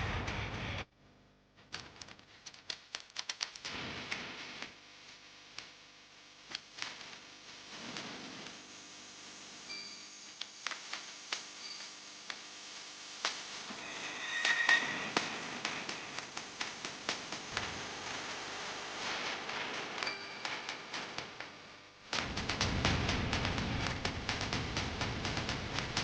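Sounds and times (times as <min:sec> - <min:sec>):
high ringing tone: 0:13.7 - 0:16.3.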